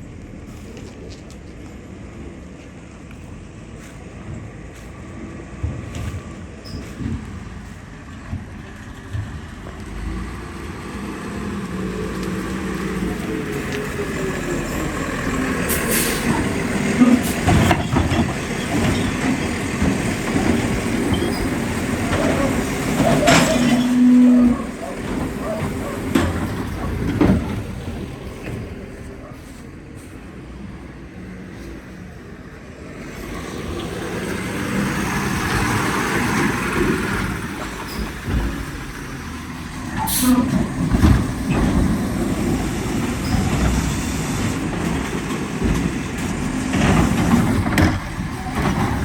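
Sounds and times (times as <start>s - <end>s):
garbage truck diesel engine: 0.0s - 49.0s
loud metal clanks and thump: 17.1s - 27.8s.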